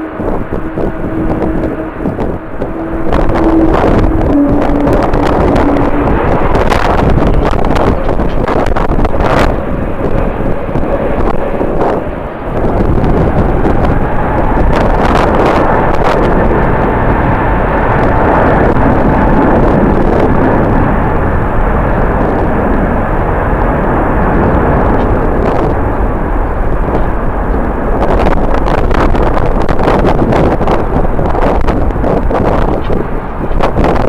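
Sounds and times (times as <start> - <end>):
jet engines running: 0.0 - 34.0
wind buffeting microphone: 0.0 - 34.0.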